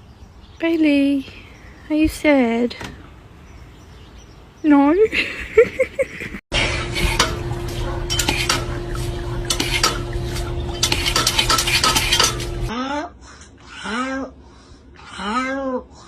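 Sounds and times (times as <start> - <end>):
steady hum: 6.5 - 12.7
clattering of hard objects: 9.4 - 12.7.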